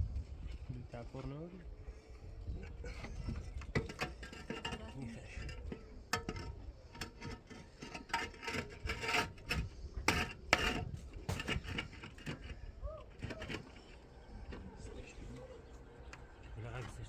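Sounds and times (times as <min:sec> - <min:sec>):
wood scraping: 0:02.6 - 0:15.6.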